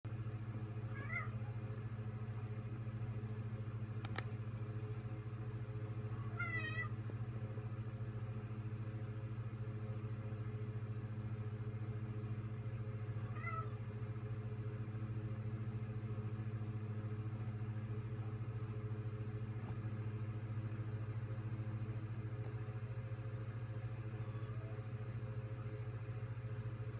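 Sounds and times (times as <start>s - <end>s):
low hum: 0.1s - 26.9s
cat meowing: 0.9s - 1.5s, 6.2s - 7.0s, 13.2s - 13.8s, 24.2s - 24.8s.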